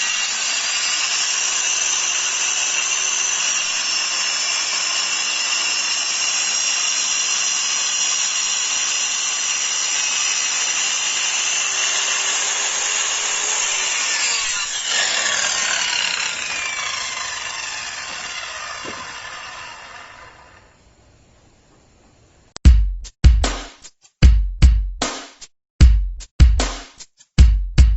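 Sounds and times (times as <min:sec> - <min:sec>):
circular saw cutting wood: 0:00.0 - 0:20.8.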